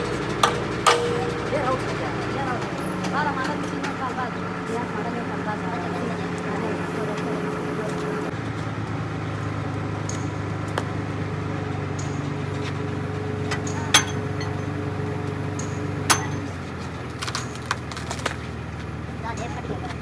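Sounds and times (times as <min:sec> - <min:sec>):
hammer strikes on steel: 0:00.0 - 0:02.3, 0:13.6 - 0:14.8, 0:15.6 - 0:16.6
running engine drone: 0:00.0 - 0:20.0.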